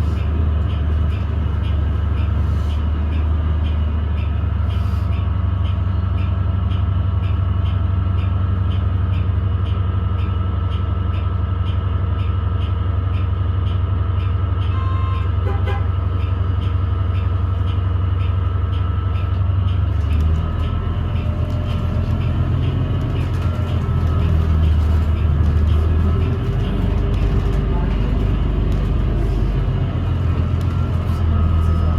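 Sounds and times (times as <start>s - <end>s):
bus drivetrain drone: 0.0s - 31.9s.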